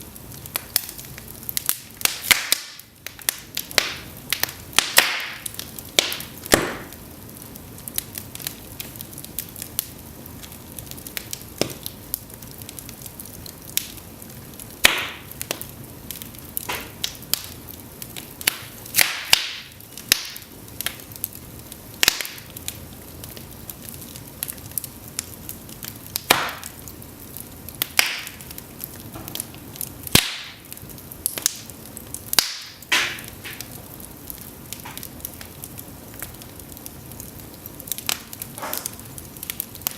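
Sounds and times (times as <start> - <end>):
flames hissing: 0.0 - 39.9
logs snapping and popping: 1.6 - 7.0, 11.6 - 12.0, 14.8 - 15.7, 16.6 - 17.5, 18.4 - 20.4, 26.1 - 26.8, 27.8 - 28.4, 30.1 - 30.6, 32.3 - 33.7.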